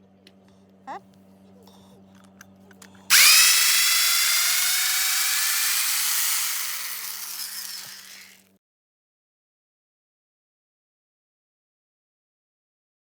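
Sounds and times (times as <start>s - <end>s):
power drill boring into wood: 3.1s - 8.4s.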